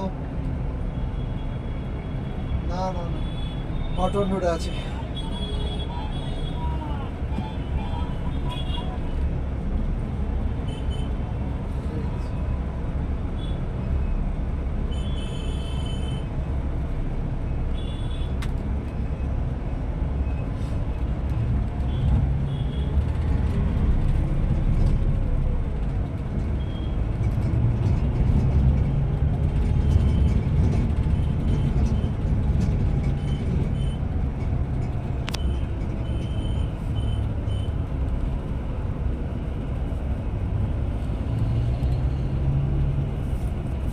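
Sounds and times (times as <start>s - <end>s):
coach engine and road rumble: 0.0s - 43.9s.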